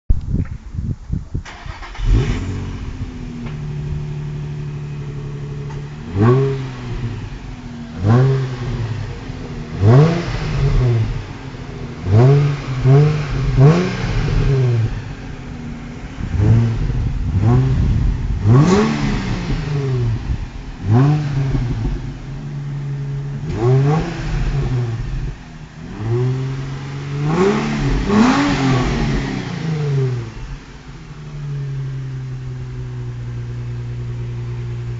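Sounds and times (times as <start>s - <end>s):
car engine idling and revving: 1.5s - 34.9s.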